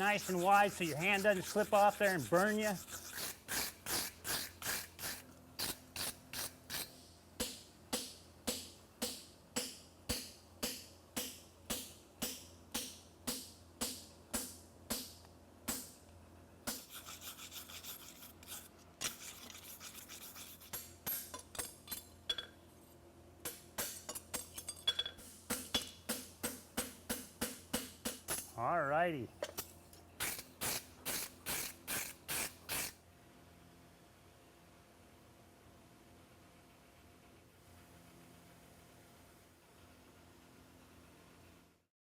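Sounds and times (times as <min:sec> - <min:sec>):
wire brush scrubbing metal: 0:00.0 - 0:06.9, 0:16.7 - 0:20.8, 0:30.2 - 0:32.9.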